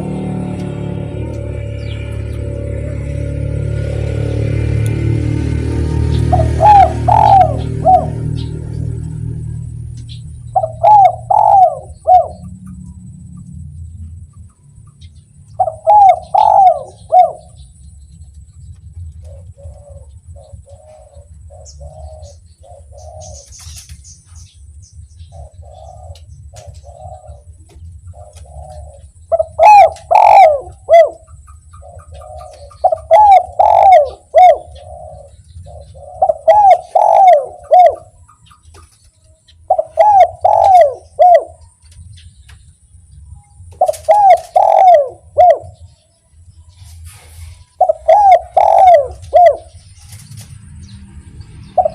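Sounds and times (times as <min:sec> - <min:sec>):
dove cooing: 0:00.0 - 0:13.7, 0:15.5 - 0:17.8, 0:18.9 - 0:23.7, 0:25.2 - 0:42.5, 0:43.1 - 0:46.0, 0:46.8 - 0:50.6, 0:51.6 - 0:51.9
faint low rumble: 0:00.0 - 0:51.9.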